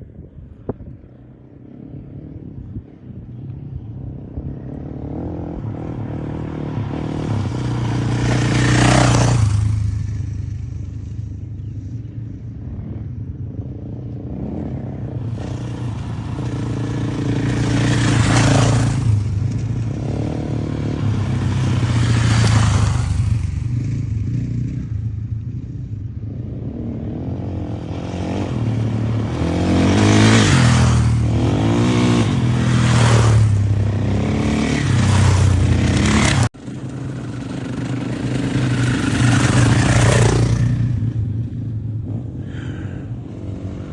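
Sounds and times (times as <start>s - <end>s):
motocross bike engines revving: 3.8s - 43.9s.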